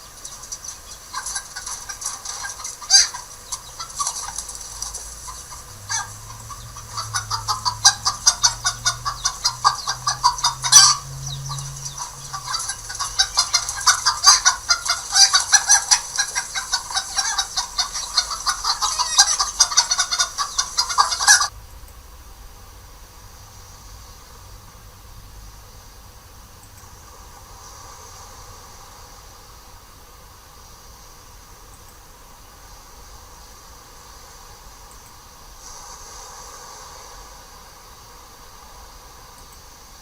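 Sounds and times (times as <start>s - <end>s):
flock of birds calling: 0.0s - 21.5s.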